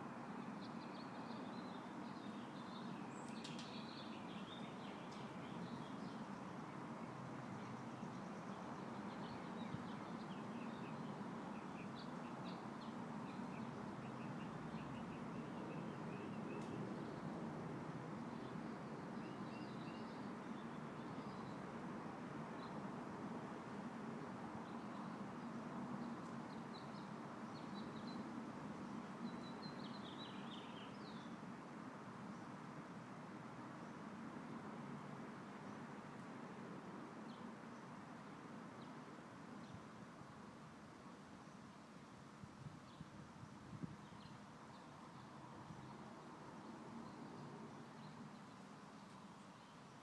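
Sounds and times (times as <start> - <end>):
light breeze hiss: 0.0 - 50.0
soft wind noise: 0.0 - 50.0
small birds chirping: 0.4 - 17.4, 24.6 - 31.4.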